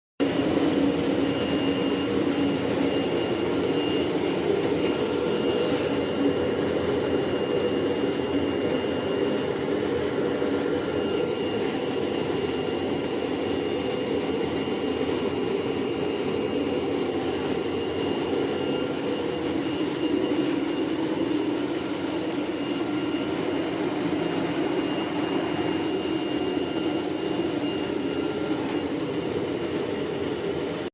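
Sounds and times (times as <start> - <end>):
cnc machine running: 0.2 - 30.9
thin high whine: 0.2 - 30.9.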